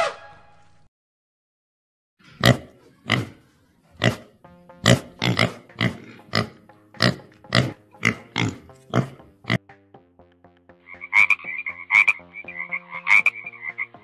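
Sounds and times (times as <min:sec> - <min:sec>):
animal grunting: 0:02.2 - 0:09.6
light background music: 0:02.3 - 0:14.0.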